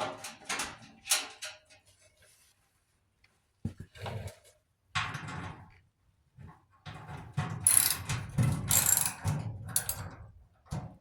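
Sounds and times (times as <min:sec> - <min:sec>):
metal parts clanking and rattling: 0:07.4 - 0:10.3.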